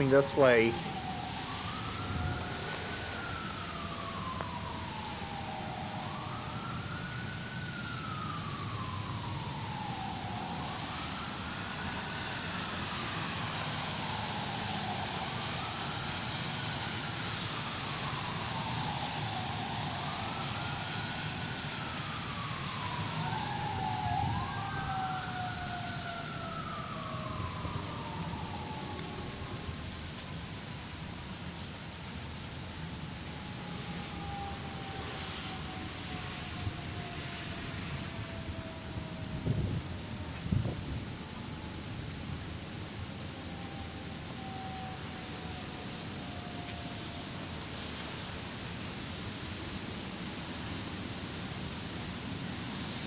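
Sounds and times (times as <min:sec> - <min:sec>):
rain hissing: 0:00.0 - 0:53.0
siren wailing: 0:00.0 - 0:53.0
siren tone sliding downward: 0:33.3 - 0:41.7, 0:43.4 - 0:45.6.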